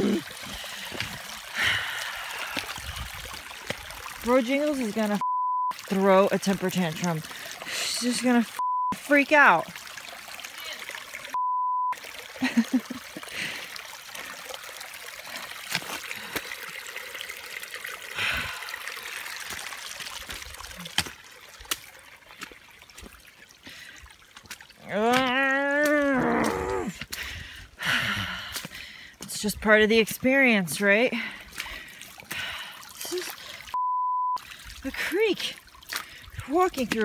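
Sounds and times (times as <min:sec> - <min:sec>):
woman moaning: 0:00.0 - 0:00.3, 0:24.9 - 0:27.0
water trickling and running: 0:00.0 - 0:33.8, 0:34.4 - 0:37.0
censor bleep: 0:05.2 - 0:05.8, 0:08.6 - 0:09.0, 0:11.4 - 0:12.0, 0:33.8 - 0:34.4.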